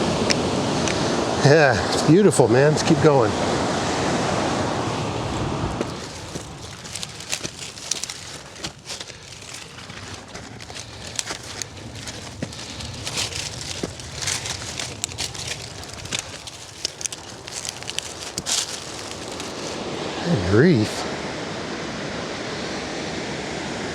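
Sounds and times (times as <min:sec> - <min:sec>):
brush rustling: 0:04.0 - 0:21.0
footsteps crunching on dirt trail: 0:04.7 - 0:20.0.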